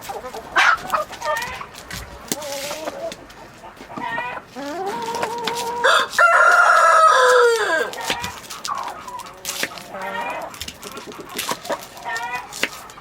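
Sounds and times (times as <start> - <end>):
hens clucking: 0.0 - 13.0
rooster crowing: 5.7 - 8.3.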